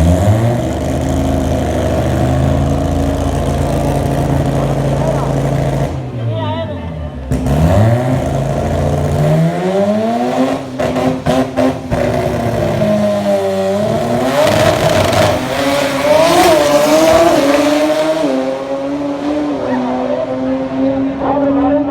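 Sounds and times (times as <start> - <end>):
rotary engine revving: 7.2 - 21.9.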